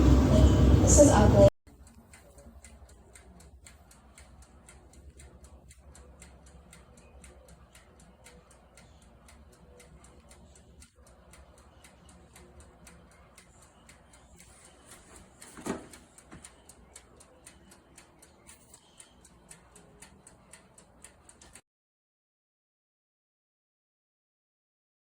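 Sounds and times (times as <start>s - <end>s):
mechanical timer ticking: 1.7s - 21.6s.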